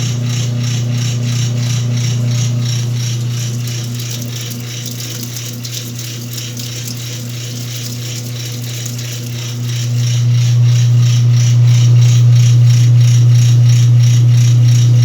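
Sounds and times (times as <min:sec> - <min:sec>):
washing machine motor hum: 0:00.0 - 0:15.0
mechanical clicking and rattling: 0:02.0 - 0:10.5.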